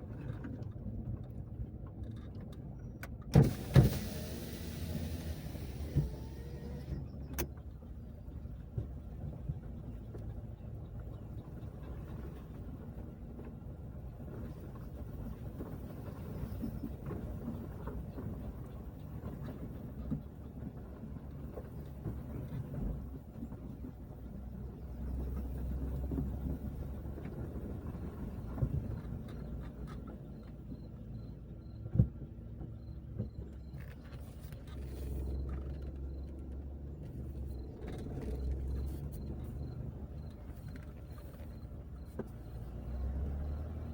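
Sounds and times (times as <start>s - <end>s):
tyres and engine rumbling: 0.0s - 43.9s
car knocks and thumps over bumps: 31.8s - 36.4s.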